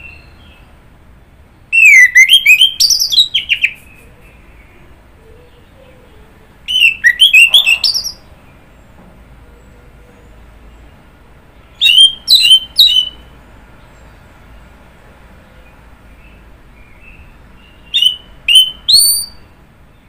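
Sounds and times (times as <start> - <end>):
bird singing whistled notes: 1.7 - 6.0, 6.6 - 8.9, 11.7 - 13.3, 16.1 - 20.0.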